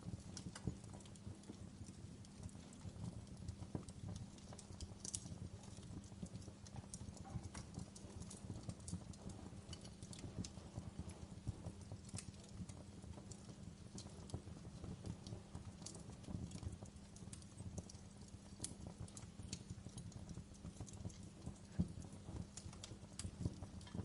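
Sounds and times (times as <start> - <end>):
rumble of flames: 0.0 - 24.0
wood fire crackling: 0.0 - 24.0
sharp pops and snaps: 0.4 - 10.8.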